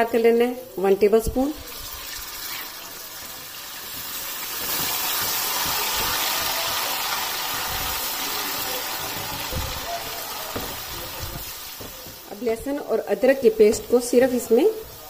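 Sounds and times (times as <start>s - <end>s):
paste sizzling in hot oil: 1.6s - 15.0s
spatula stirring in pan: 3.5s - 15.0s.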